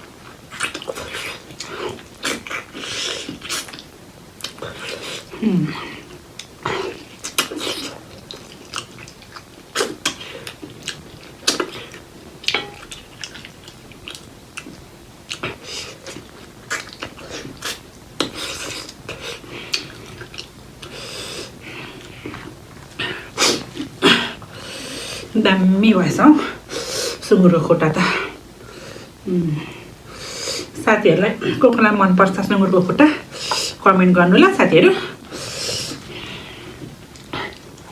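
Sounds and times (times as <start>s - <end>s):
wet chewing: 0.2s - 24.6s.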